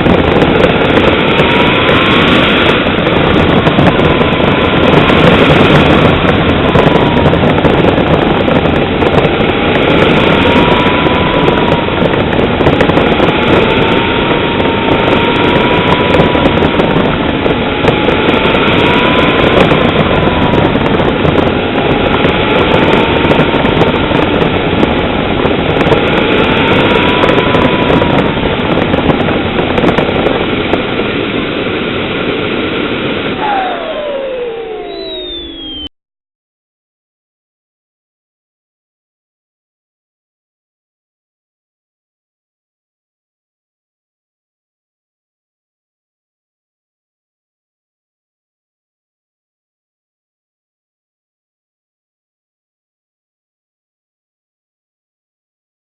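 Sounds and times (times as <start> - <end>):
model jet engine whine: 0.0 - 35.9.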